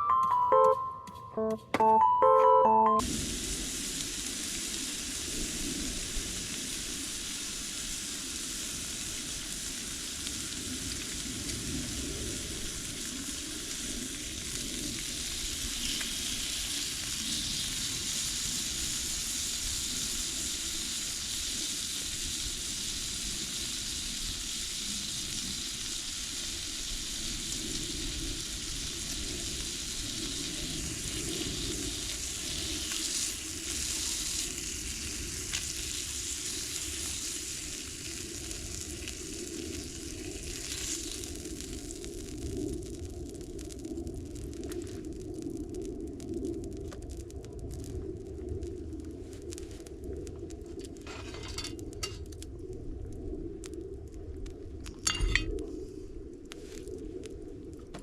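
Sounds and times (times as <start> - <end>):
meat sizzling: 3.3 - 47.2
small crackles: 3.9 - 58.0.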